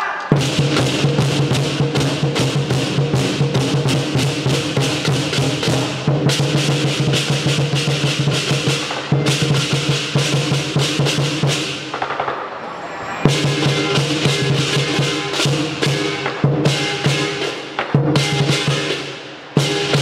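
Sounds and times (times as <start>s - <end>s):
cymbals clashing: 0.0s - 20.0s
drum beaten fast: 0.3s - 19.0s
low ringing: 12.2s - 15.4s.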